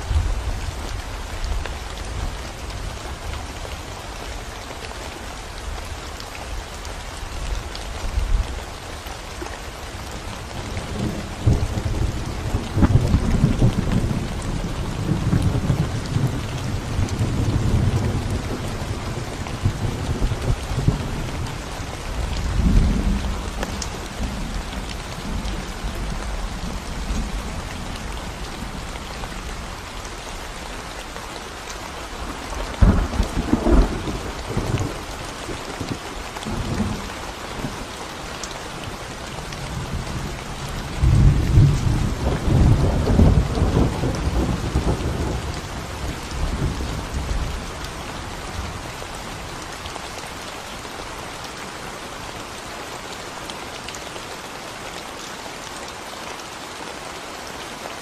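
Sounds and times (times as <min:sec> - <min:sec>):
rain on concrete road: 0:00.0 - 0:58.0
thunder rumbling: 0:10.6 - 0:29.8, 0:32.2 - 0:37.8, 0:39.6 - 0:47.7.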